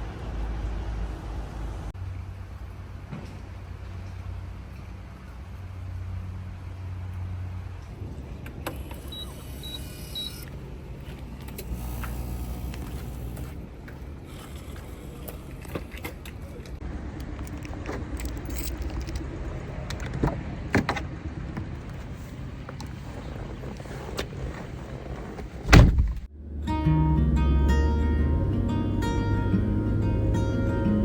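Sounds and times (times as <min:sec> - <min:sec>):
steady low rumble in a van: 0:00.0 - 0:31.0
short high beeps: 0:09.1 - 0:10.5
keys jangling: 0:17.5 - 0:19.3.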